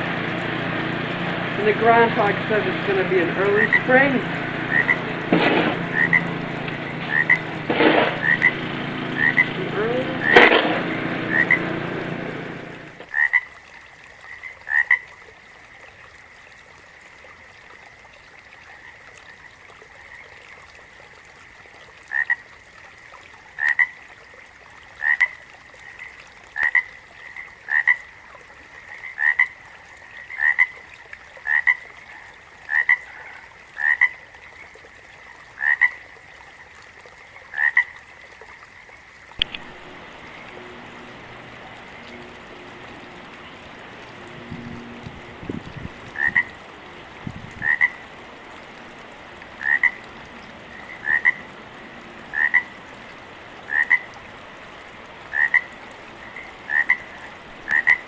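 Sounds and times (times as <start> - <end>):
loud dense noise: 0.0 - 13.0, 39.4 - 47.2
frogs chirping croaks: 1.2 - 15.5, 17.6 - 20.8, 22.0 - 22.7, 23.5 - 24.1, 25.0 - 58.0.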